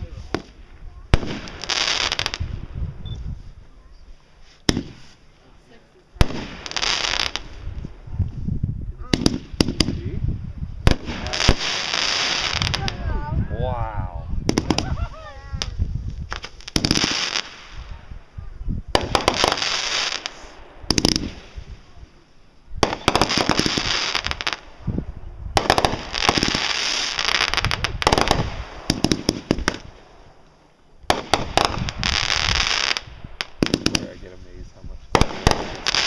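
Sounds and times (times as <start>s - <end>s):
fireworks bangs: 0.0s - 3.6s, 4.6s - 8.2s, 8.9s - 13.4s, 14.4s - 22.2s, 22.8s - 36.0s
crackling hiss of fireworks: 0.0s - 36.0s.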